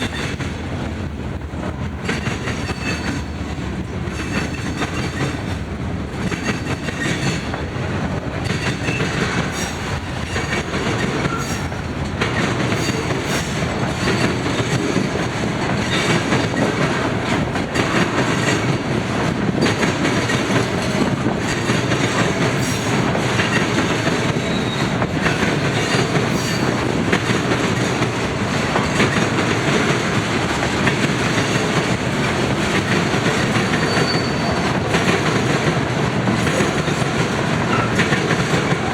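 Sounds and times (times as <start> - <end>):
train wheels clicking over rail joints: 0.0 - 38.9
faint wheel squeal: 33.8 - 34.6.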